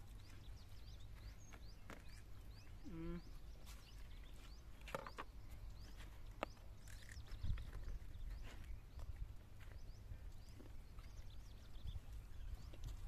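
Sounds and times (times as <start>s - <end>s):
birds chirping: 0.0s - 13.0s
low rumble of wind: 0.0s - 13.0s.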